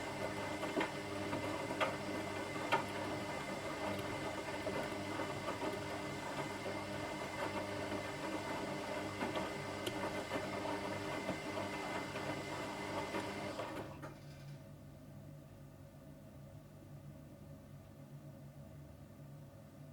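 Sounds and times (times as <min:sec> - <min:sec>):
washing machine whirring: 0:00.0 - 0:14.7.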